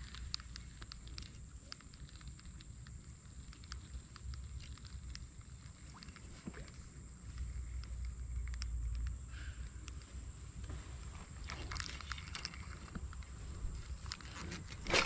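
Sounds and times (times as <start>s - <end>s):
faint ticks and clicks: 0.0s - 14.9s
wind rumble on microphone: 11.2s - 15.0s.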